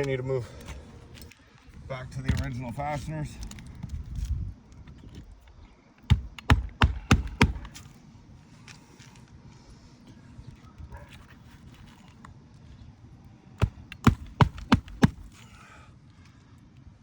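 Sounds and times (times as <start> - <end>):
hammer striking roofing nail: 6.1 - 7.9, 13.6 - 15.4.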